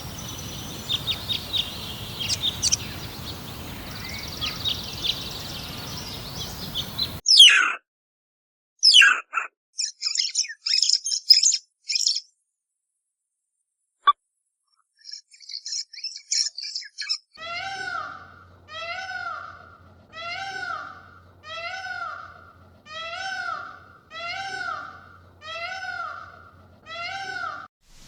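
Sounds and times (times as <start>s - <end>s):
animal calling high-pitched: 0.0s - 7.8s, 17.4s - 27.7s.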